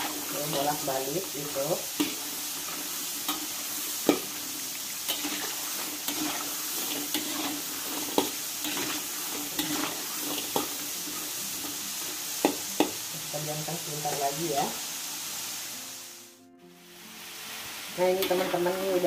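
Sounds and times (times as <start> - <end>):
spatula scraping a wok: 0.0 - 4.4, 5.0 - 12.9
potatoes sizzling in oil: 0.0 - 19.0.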